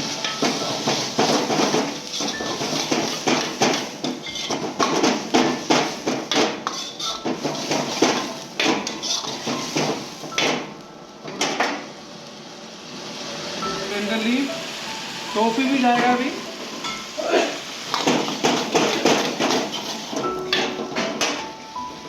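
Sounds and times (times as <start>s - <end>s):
metal utensil clanking on wok: 0.0s - 10.7s, 17.9s - 21.5s.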